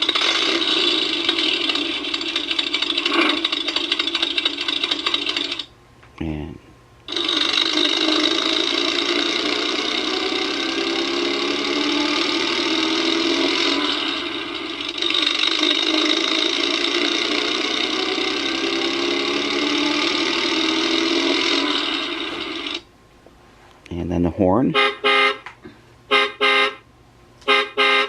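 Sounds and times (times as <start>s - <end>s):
toy truck engine sound effect: 0.0s - 5.7s, 7.1s - 22.9s.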